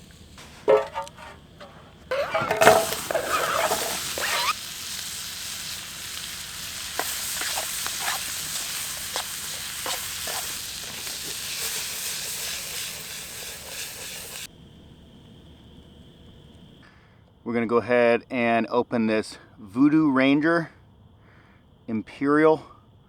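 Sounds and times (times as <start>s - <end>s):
fat popping: 0.0s - 14.5s
food sizzling in a pan: 0.0s - 14.5s.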